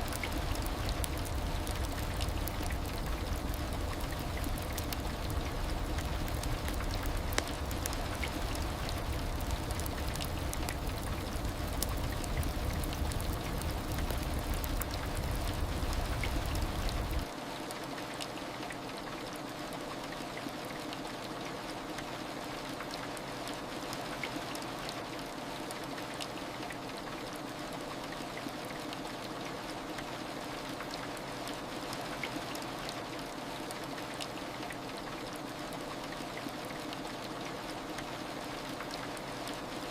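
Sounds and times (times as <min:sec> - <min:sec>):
heavy rain pattering: 0:00.0 - 0:17.3.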